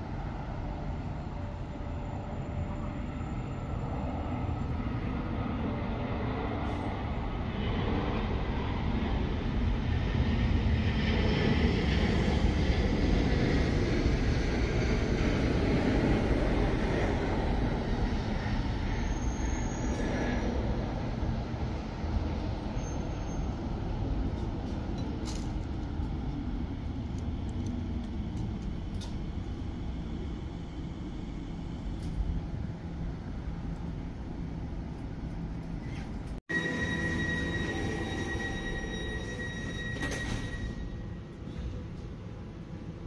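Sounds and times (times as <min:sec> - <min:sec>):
electric train rumble: 0:00.0 - 0:43.0.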